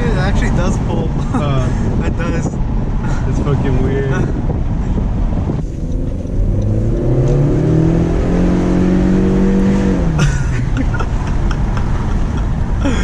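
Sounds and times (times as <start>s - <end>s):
engine accelerating hard: 3.3s - 12.9s.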